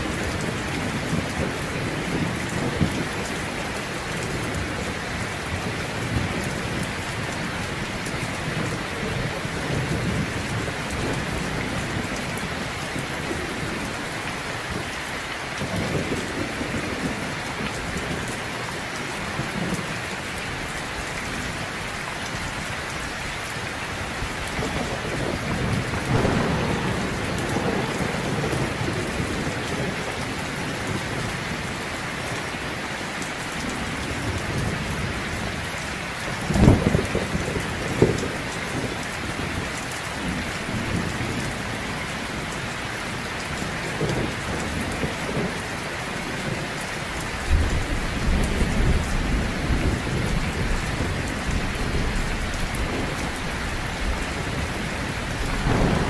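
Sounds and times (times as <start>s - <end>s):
thunder rumbling: 0.0s - 14.9s, 24.0s - 32.4s, 33.6s - 42.5s, 43.1s - 56.0s
heavy rain: 0.0s - 56.0s
sharp thunder crack: 25.8s - 29.4s, 55.3s - 56.0s.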